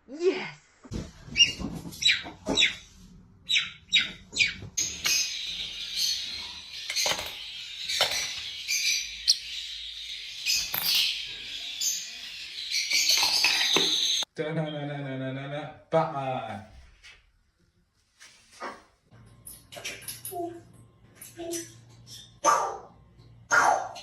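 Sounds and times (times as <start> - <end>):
parrots chirping: 1.3 - 14.3.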